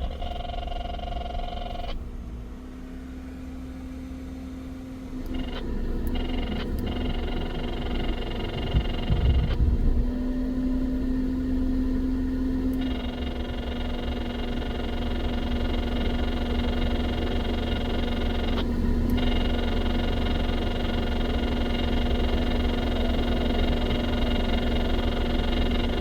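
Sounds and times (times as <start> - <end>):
motor humming: 0.0 - 2.1, 5.1 - 26.0.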